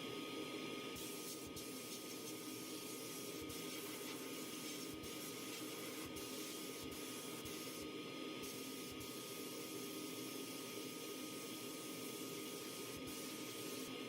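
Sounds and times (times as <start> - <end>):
faint constant whine: 0.0 - 14.0.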